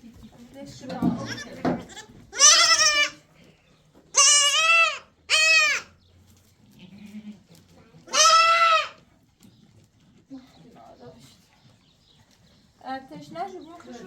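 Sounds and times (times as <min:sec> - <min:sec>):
sheep bleating: 0:01.2 - 0:03.2, 0:04.2 - 0:05.9, 0:08.1 - 0:09.0.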